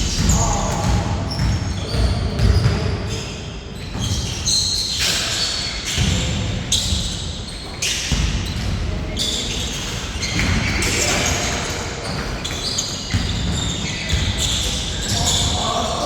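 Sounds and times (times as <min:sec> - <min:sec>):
basketball bouncing: 0:00.0 - 0:02.9, 0:08.1 - 0:09.0
shoe squeaks on court: 0:00.0 - 0:16.0.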